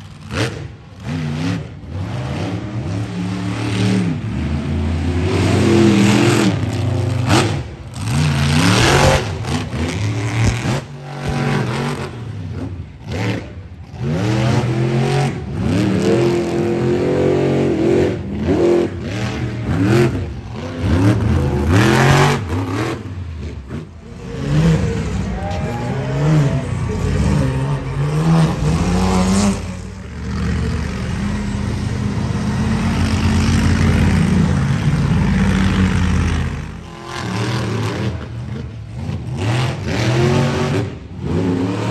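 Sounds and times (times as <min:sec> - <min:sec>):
truck engine revving: 0:00.0 - 0:41.9.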